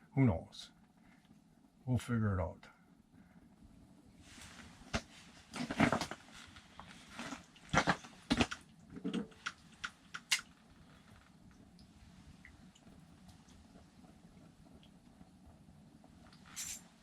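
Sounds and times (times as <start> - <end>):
rustling scrapes: 4.2 - 8.6, 16.5 - 16.9.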